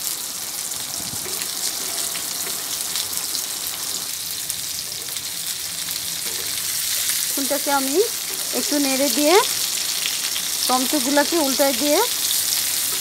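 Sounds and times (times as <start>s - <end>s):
fish frying in oil: 0.0s - 13.0s.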